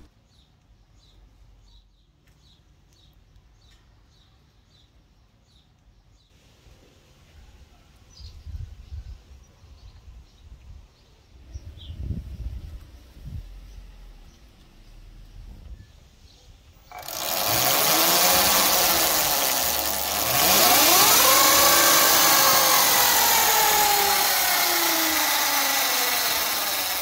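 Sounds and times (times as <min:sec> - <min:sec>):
wind rumbling on microphone: 0:08.2 - 0:13.8.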